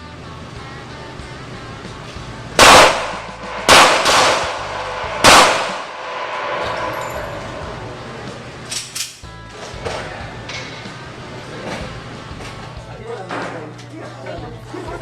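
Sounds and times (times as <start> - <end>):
loud sharp bangs: 2.6 - 8.7.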